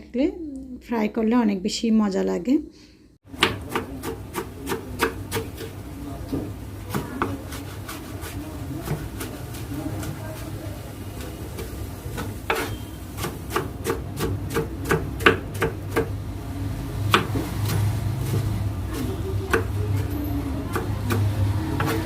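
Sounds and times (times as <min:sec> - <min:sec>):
knife chopping on cutting board: 0:03.3 - 0:10.2, 0:11.6 - 0:16.2, 0:17.1 - 0:17.8, 0:18.9 - 0:20.1, 0:20.7 - 0:22.0.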